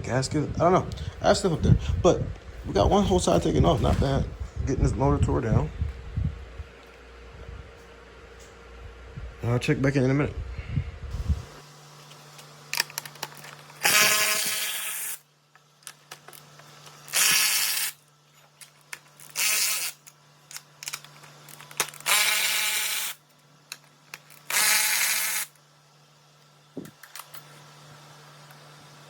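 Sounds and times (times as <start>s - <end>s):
cordless power tool bursts: 13.8s - 15.3s, 17.1s - 18.0s, 19.2s - 20.0s, 21.8s - 23.2s, 24.4s - 25.6s.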